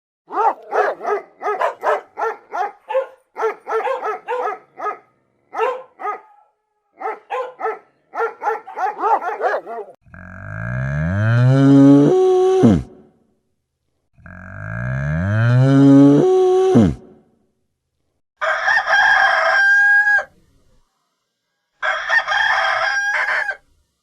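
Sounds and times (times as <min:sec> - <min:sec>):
dog barking: 0:00.3 - 0:10.0
cow mooing: 0:10.1 - 0:13.0, 0:14.2 - 0:17.0.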